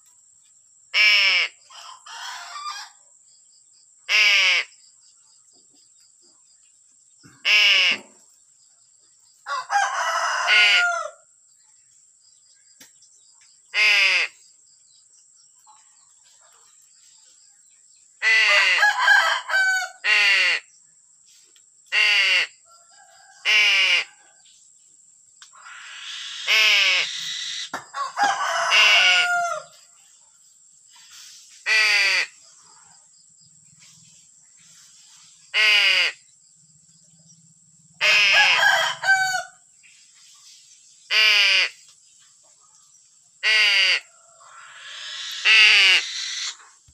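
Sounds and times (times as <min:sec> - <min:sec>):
crows cawing: 0:04.1 - 0:04.7, 0:07.2 - 0:08.2, 0:09.5 - 0:11.2, 0:13.7 - 0:14.4, 0:18.2 - 0:20.7, 0:21.9 - 0:22.6, 0:23.4 - 0:24.2, 0:25.6 - 0:29.7, 0:35.6 - 0:36.2, 0:38.0 - 0:39.6, 0:43.4 - 0:46.8.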